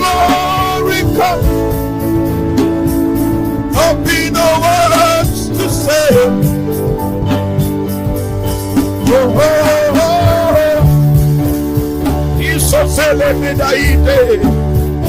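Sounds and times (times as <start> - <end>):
person singing wordless melody: 0.0 - 2.3, 3.6 - 7.1, 8.8 - 14.7
worship music with drums: 0.0 - 15.0.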